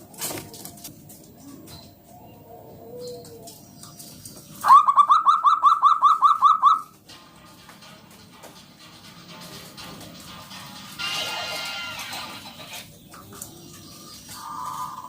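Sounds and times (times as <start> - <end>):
dove singing rising notes: 0.0 - 7.0, 12.9 - 15.0.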